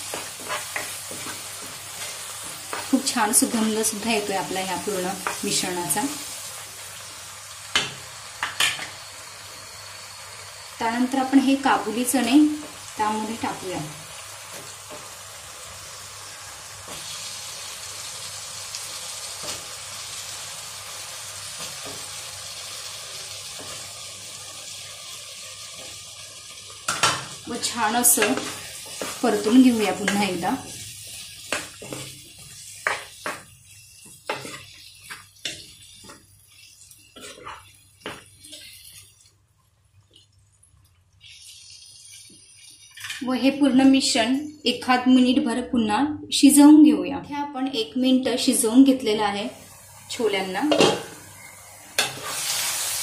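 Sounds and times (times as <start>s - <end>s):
spatula stirring in a pan: 0.0s - 7.1s, 14.2s - 40.5s, 52.0s - 53.0s
food sizzling in hot oil: 0.0s - 44.3s, 47.6s - 53.0s.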